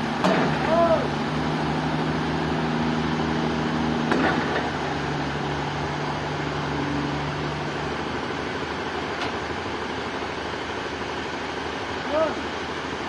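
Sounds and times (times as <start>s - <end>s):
sawmill machinery humming: 0.0s - 13.0s.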